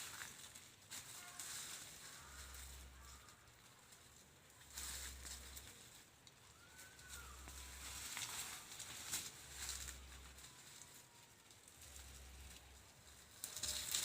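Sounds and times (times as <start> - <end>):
rustling of dry brush: 0.0 - 14.0
whistled bird call: 6.4 - 8.1.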